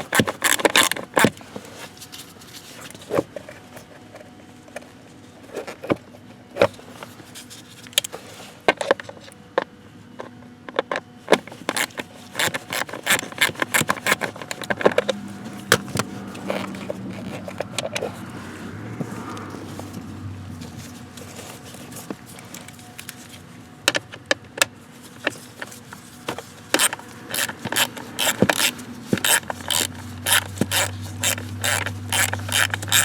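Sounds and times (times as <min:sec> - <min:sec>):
tools clicking and scraping: 0:00.0 - 0:04.9, 0:11.3 - 0:20.0, 0:20.6 - 0:24.1, 0:25.0 - 0:33.0
plastic parts being handled: 0:25.0 - 0:33.0.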